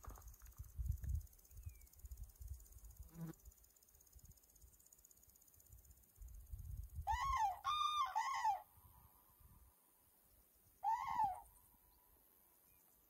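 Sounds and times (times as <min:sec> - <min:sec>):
wind rumbling on microphone: 0:00.0 - 0:02.6, 0:06.2 - 0:07.4
bird calling: 0:07.1 - 0:08.7, 0:10.8 - 0:11.6.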